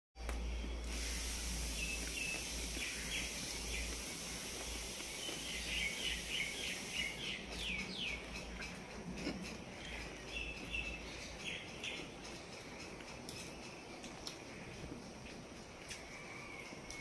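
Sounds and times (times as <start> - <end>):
steady hiss and low hum: 0.2 - 17.0
small bird chirping: 1.6 - 14.3.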